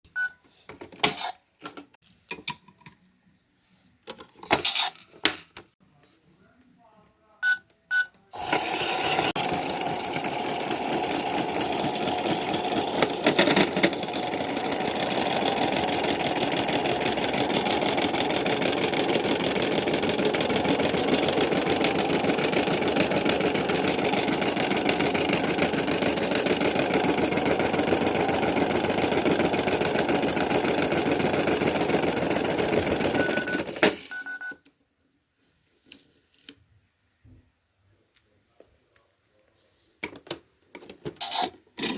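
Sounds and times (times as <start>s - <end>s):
washing machine running: 8.4s - 33.9s.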